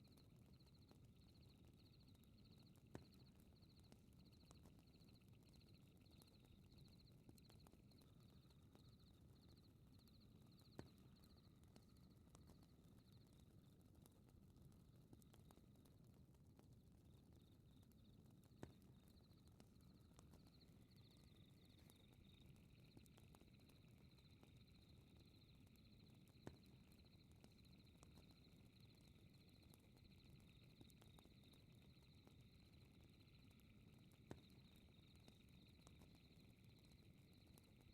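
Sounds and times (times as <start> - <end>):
night insects chirping: 19.2 - 37.9.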